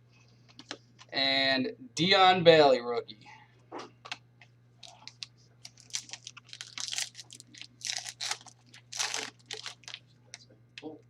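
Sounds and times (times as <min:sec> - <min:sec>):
card wrappers crinkling: 0:04.8 - 0:10.0.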